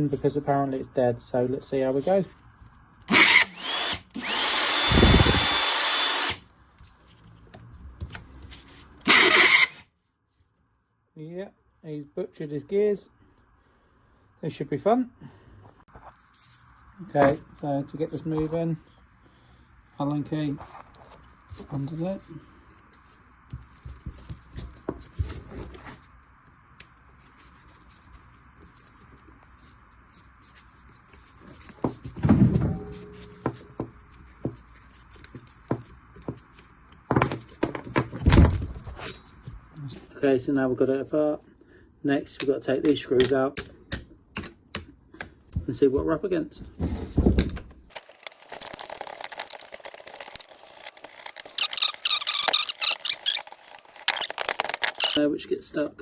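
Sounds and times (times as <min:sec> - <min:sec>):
reciprocating saw motor whining: 0:03.1 - 0:06.4, 0:09.1 - 0:09.8
clatter of parts and housing: 0:47.9 - 0:55.2.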